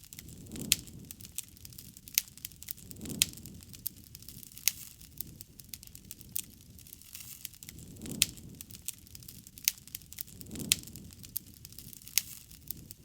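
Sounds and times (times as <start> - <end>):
campfire crackling: 0.0 - 13.0
fire popping: 0.0 - 13.0.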